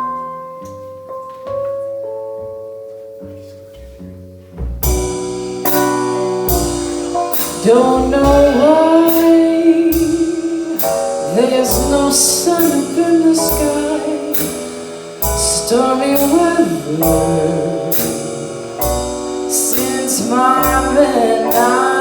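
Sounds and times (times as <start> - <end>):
bass: 0.0 - 22.0
soft keyboard chords: 0.0 - 22.0
drums with cymbal strokes: 4.8 - 22.0
person singing: 6.5 - 22.0.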